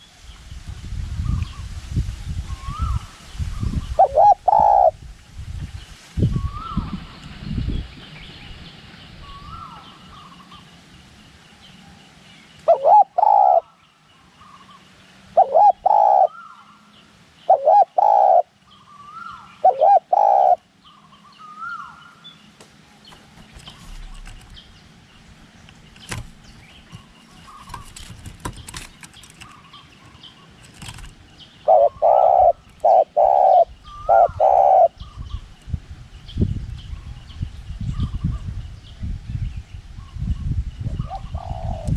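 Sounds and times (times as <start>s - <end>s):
low wind rumble: 0.0s - 41.9s
higher bird calls: 2.5s - 5.0s, 12.6s - 24.8s, 31.5s - 35.5s
dove cooing: 3.9s - 5.0s, 12.7s - 13.8s, 15.4s - 16.8s, 17.5s - 20.6s, 30.7s - 35.2s, 41.0s - 41.9s.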